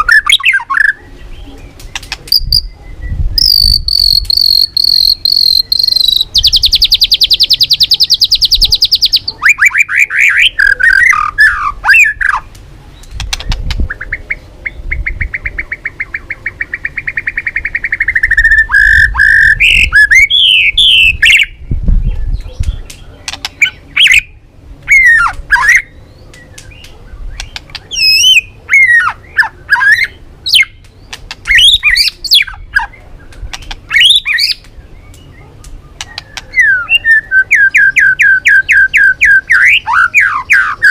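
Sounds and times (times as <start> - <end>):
bird whistled phrases: 2.3 - 12.4, 15.6 - 21.6, 26.7 - 30.8, 33.9 - 40.9
bird rattling trill: 3.4 - 9.1.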